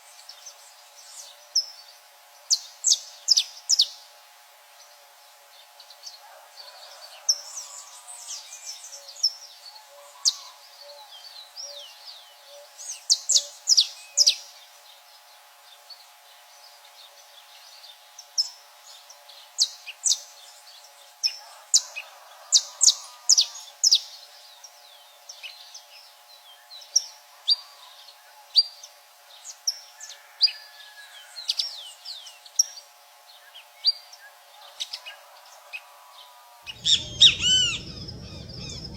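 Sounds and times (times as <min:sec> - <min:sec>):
faint steady hum: 0:00.0 - 0:38.9
birds chirping: 0:36.7 - 0:38.9.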